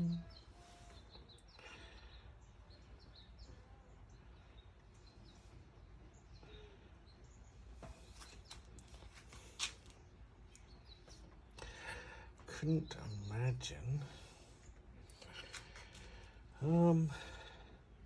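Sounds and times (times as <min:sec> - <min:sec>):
faint bird chirps: 0:00.0 - 0:08.7.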